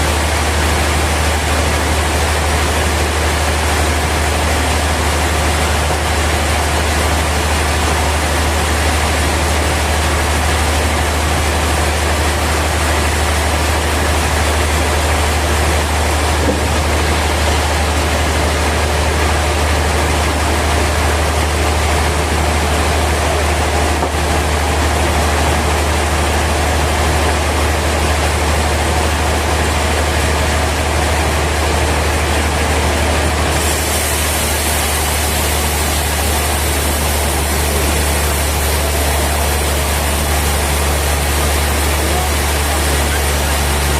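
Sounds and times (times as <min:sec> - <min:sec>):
sawmill machinery humming: 0:00.0 - 0:43.9.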